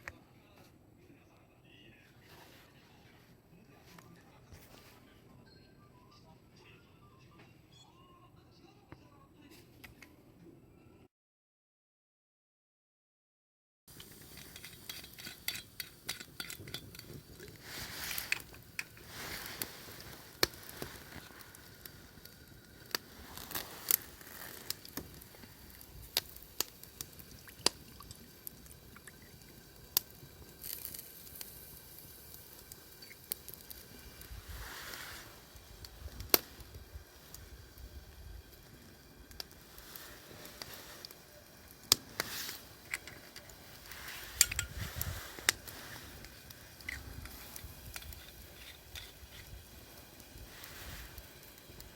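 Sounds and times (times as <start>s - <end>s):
soft liquid sounds: 13.9s - 51.9s.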